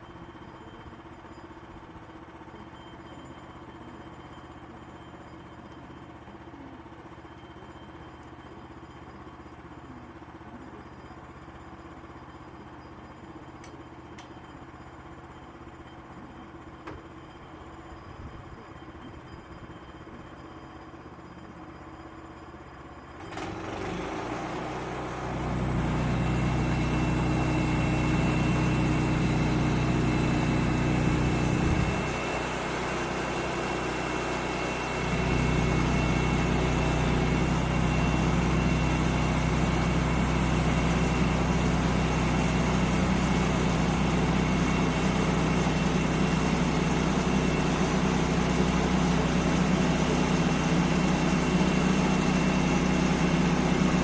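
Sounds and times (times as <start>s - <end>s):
sawmill engine running: 23.2s - 54.0s.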